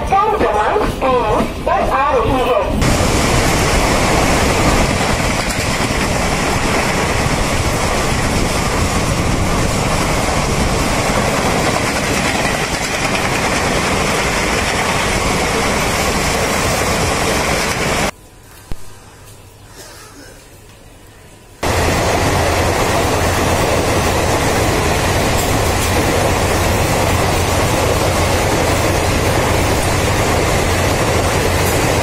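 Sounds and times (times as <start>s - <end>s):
train rumbling: 0.0s - 18.2s, 21.6s - 32.0s.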